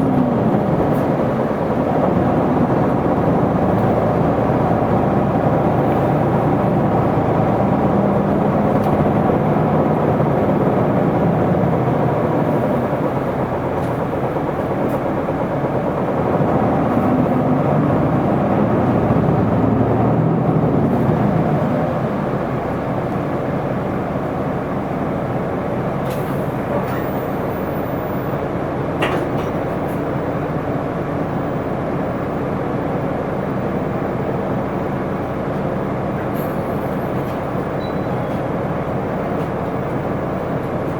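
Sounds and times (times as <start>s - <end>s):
bus diesel engine: 0.0s - 40.9s.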